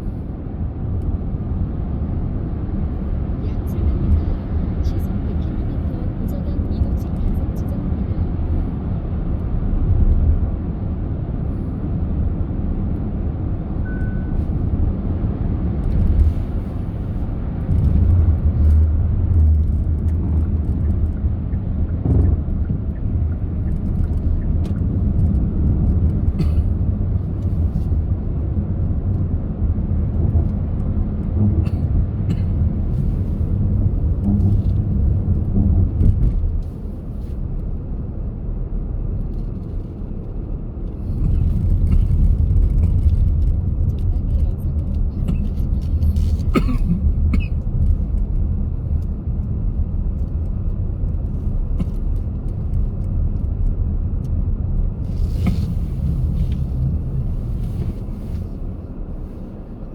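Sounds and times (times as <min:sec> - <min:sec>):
car tyre and engine rumble: 0:00.0 - 0:59.9
high beep: 0:13.9 - 0:14.4.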